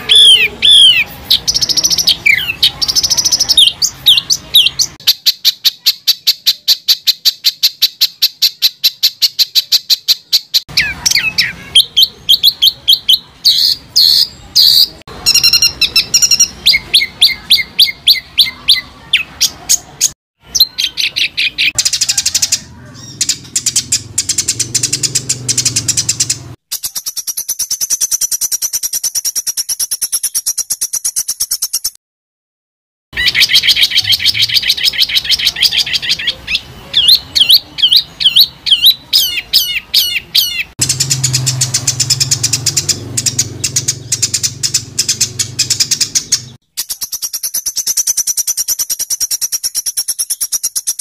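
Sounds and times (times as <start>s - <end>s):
songbird rapid sharp chirps: 0.0s - 32.0s, 33.2s - 51.0s.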